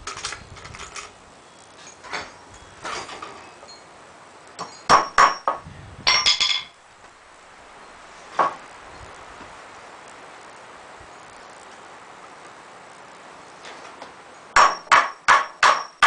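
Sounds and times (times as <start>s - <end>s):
metallic clink with ring: 2.6s - 4.0s.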